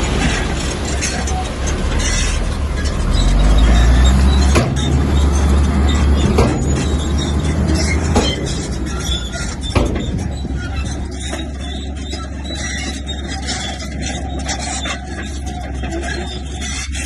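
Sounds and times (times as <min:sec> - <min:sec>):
bulldozer diesel engine rumbling: 0:00.0 - 0:17.0
sharp metallic clanks: 0:00.0 - 0:17.0.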